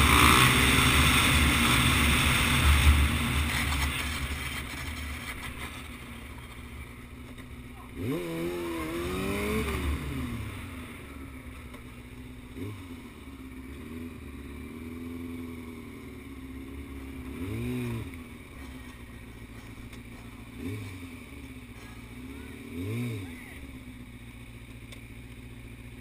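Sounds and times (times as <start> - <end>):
dirt bike engine revving: 0.0 - 6.6, 7.8 - 11.6, 16.6 - 23.8.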